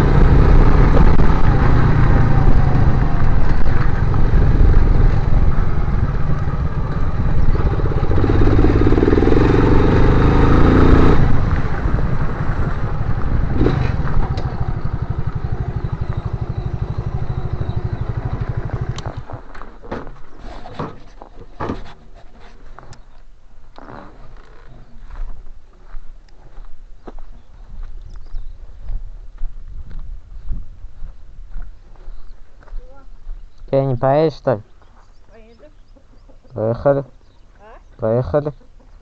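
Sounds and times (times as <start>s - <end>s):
motorcycle engine running: 0.0s - 19.6s.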